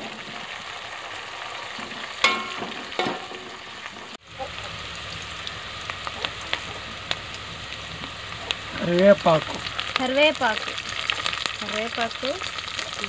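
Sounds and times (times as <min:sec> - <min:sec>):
onions sizzling in hot oil: 0:00.0 - 0:13.0
spoon clanking against pot: 0:02.2 - 0:03.4.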